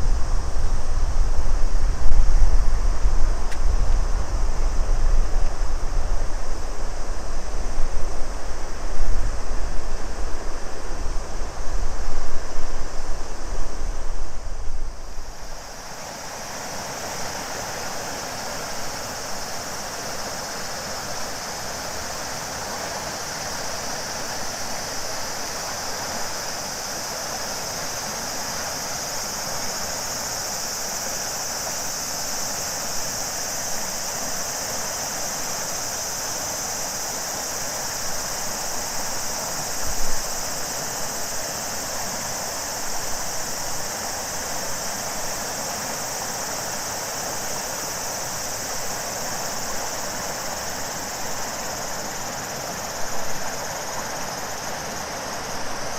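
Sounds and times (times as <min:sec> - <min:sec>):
heavy low rumble: 0:00.0 - 0:06.1
cicadas singing: 0:00.0 - 0:55.9
river water flowing: 0:15.0 - 0:55.9.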